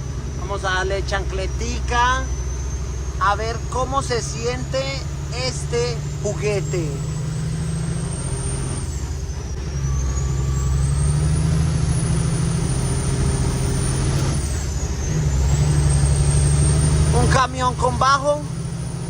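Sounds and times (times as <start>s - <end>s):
diesel truck engine pulling hard: 0.0s - 19.0s
high whistle: 6.1s - 17.5s.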